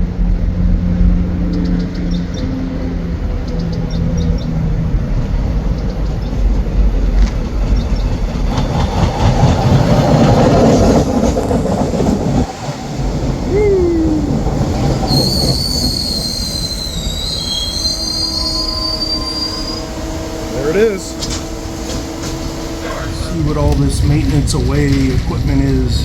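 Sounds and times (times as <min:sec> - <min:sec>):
train rumbling on rails: 0:00.0 - 0:26.0
train wheels squealing: 0:14.0 - 0:26.0.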